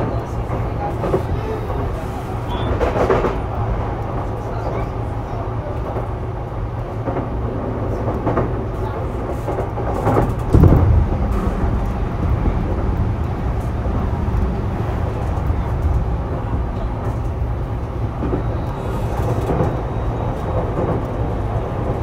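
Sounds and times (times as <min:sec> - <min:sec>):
train wheels rumbling on rail: 0:00.0 - 0:22.0
heavy thump: 0:10.4 - 0:15.4.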